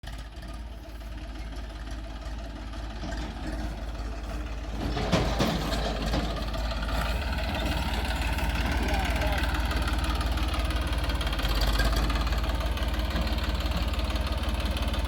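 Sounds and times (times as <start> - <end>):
heavy diesel engine running: 0.0 - 15.0.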